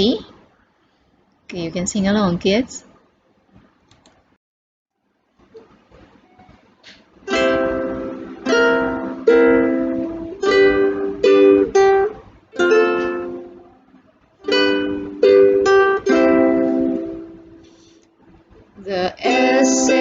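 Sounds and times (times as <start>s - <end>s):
ukulele strumming chords: 7.2s - 17.9s, 19.2s - 20.0s.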